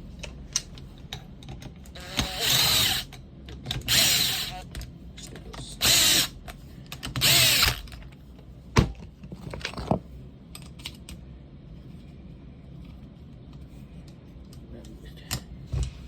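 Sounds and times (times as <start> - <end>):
power drill-driver running: 2.0 - 3.1, 3.9 - 4.7, 5.8 - 6.3, 7.2 - 7.9.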